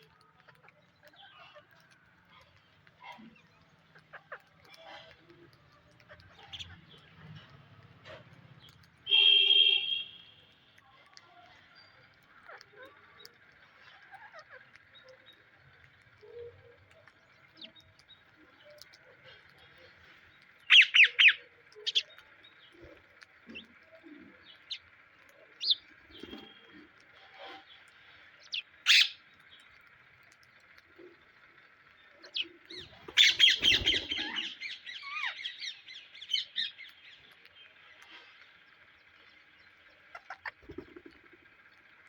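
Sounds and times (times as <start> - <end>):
parakeets chirping and screeching: 0.1 - 10.0, 11.0 - 42.0
parakeets squawking harshly: 13.8 - 14.8, 20.6 - 22.1, 28.4 - 29.4, 32.3 - 36.8, 40.1 - 40.9.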